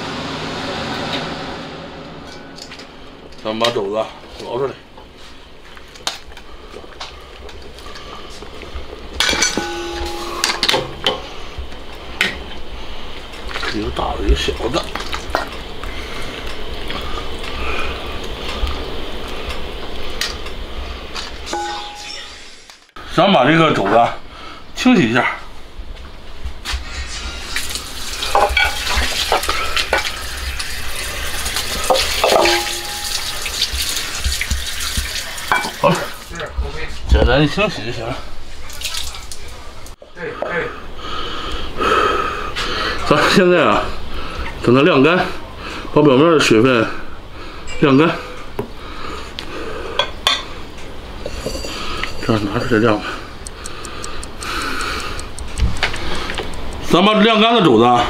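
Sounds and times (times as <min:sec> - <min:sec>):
glass bowl clink: 0:09.2 - 0:11.2, 0:21.5 - 0:22.4, 0:31.9 - 0:33.7, 0:35.5 - 0:35.9
sharp metallic knocks ringing: 0:09.2 - 0:11.2, 0:21.5 - 0:22.3, 0:32.2 - 0:33.6
metal utensils clanking on wok: 0:09.2 - 0:11.3, 0:21.5 - 0:22.3, 0:31.8 - 0:33.7, 0:35.4 - 0:35.9
tap water running and splashing: 0:13.3 - 0:20.1, 0:27.5 - 0:36.3, 0:38.6 - 0:39.6.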